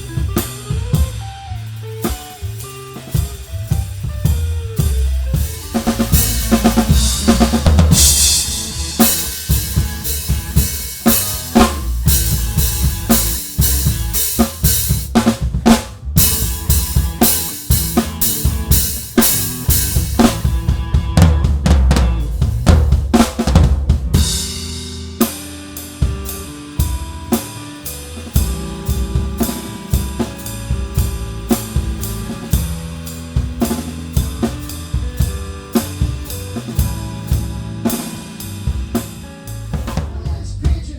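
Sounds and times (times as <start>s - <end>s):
bass and guitar notes: 0.0s - 40.9s
drum kit playing: 0.0s - 40.9s
cymbal crashes: 5.4s - 15.1s.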